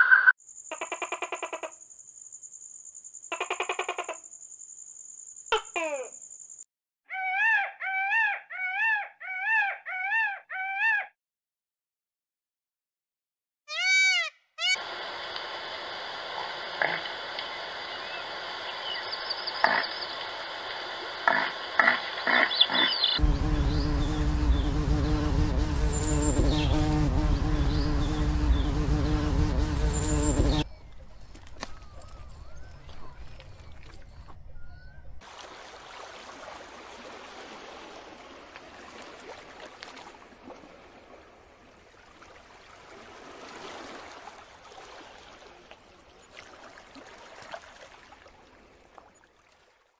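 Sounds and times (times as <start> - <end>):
peacock wailing calls: 7.1 - 11.1, 13.7 - 14.9
bee buzzing: 23.2 - 30.6.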